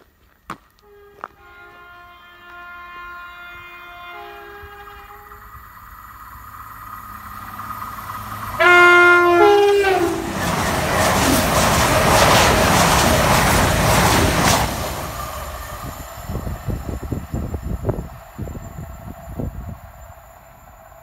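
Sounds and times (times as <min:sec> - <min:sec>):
two-tone train horn: 0:00.8 - 0:05.6, 0:08.5 - 0:10.4
train rushing past: 0:00.9 - 0:21.0
wheels clattering over rails: 0:09.3 - 0:16.4.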